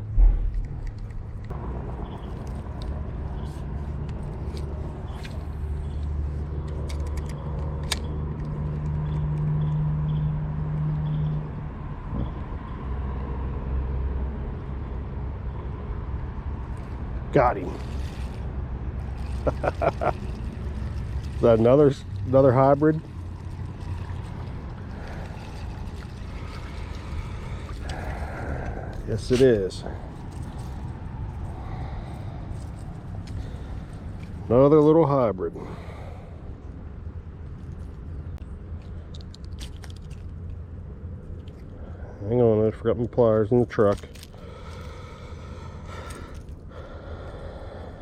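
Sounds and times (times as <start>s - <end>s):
low rumble: 0.0s - 3.1s, 16.2s - 34.5s
vehicle engine drone: 0.0s - 48.0s
creek water flowing: 16.6s - 34.5s.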